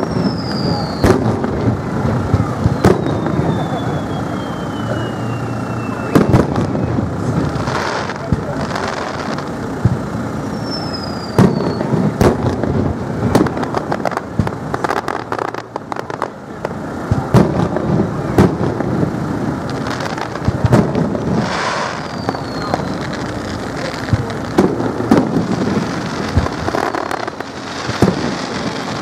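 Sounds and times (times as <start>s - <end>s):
falling firework whistle: 0.0s - 9.5s, 10.4s - 12.7s, 19.7s - 29.0s
firework bangs with rumbling echoes: 0.0s - 29.0s.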